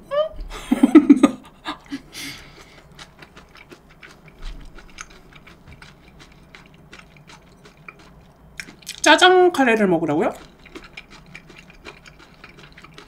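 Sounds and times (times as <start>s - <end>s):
soft chewing: 1.7s - 9.1s, 10.2s - 13.0s.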